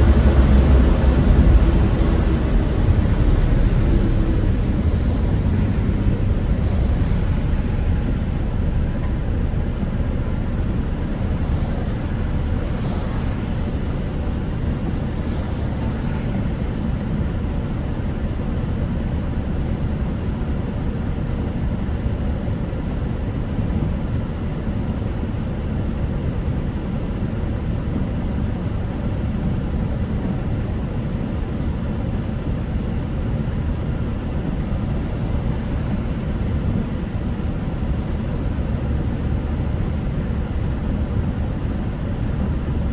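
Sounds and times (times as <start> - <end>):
car road and engine noise: 0.0 - 42.9.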